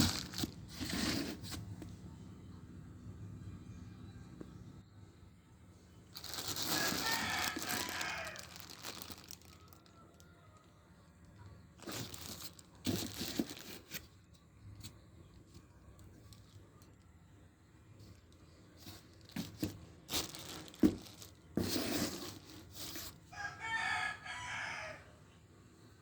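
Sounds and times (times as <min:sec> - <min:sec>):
packaging being pulled open: 0:00.0 - 0:01.6, 0:06.2 - 0:09.7, 0:11.8 - 0:14.1.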